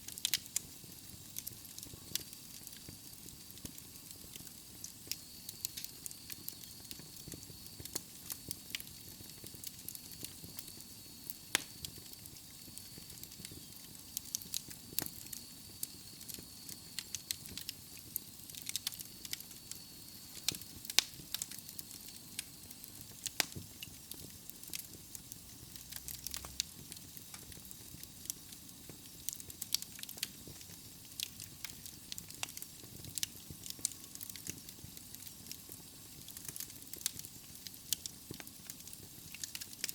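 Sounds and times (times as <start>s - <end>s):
logs crackling in fireplace: 0.0s - 39.9s.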